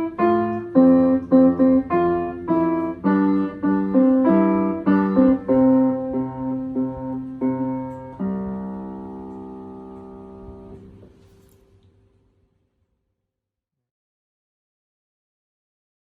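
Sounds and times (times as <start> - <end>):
piano notes and chords: 0.0 - 11.6.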